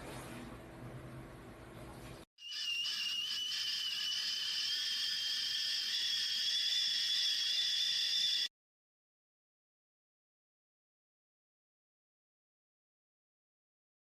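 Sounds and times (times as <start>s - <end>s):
kettle whistling: 2.4s - 8.5s.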